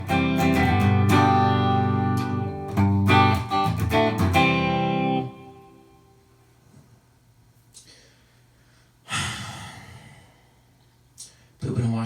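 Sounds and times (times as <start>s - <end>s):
guitar strumming chords: 0.0s - 6.2s.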